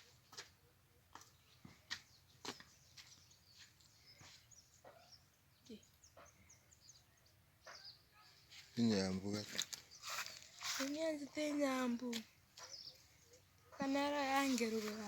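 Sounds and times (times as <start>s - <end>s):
faint bird chirps: 0.0s - 9.0s, 12.6s - 15.0s.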